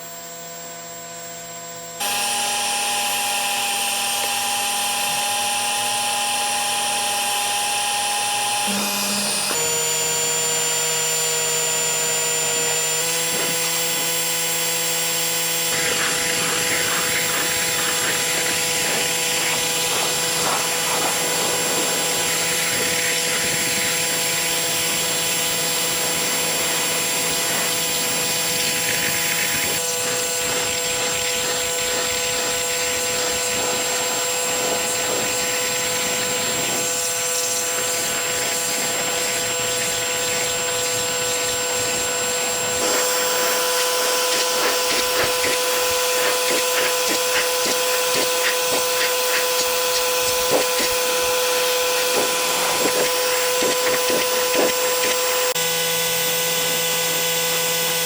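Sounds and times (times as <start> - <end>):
machine hum and whine: 0.0 - 58.0
pressure washer spray hissing: 13.0 - 55.5.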